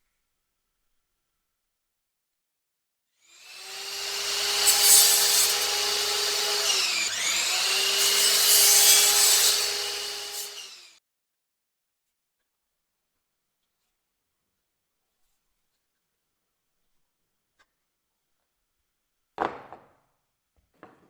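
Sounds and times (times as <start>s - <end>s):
power tool cutting wood: 3.2s - 11.0s.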